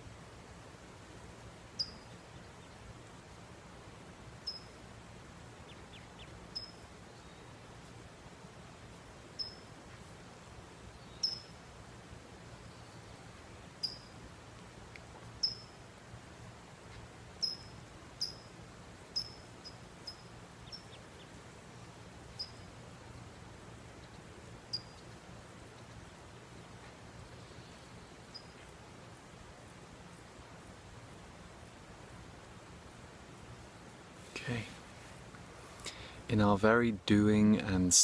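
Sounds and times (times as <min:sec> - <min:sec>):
faint low background hum: 0:00.0 - 0:38.0
small bird chirping: 0:01.8 - 0:02.9, 0:04.4 - 0:04.8, 0:05.6 - 0:07.7, 0:09.3 - 0:09.8, 0:10.8 - 0:11.6, 0:12.6 - 0:14.2, 0:15.3 - 0:15.8, 0:17.4 - 0:21.4, 0:22.2 - 0:23.2, 0:23.9 - 0:28.8.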